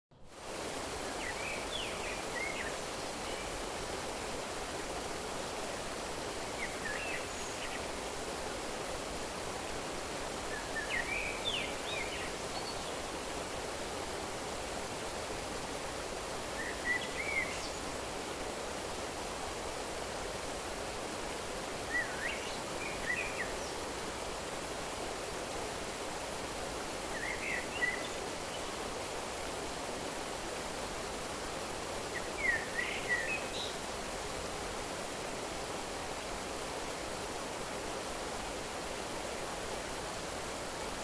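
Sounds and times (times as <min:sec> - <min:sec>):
stream water rushing: 0:00.2 - 0:41.0
songbird chirping: 0:19.9 - 0:31.2, 0:31.8 - 0:34.0.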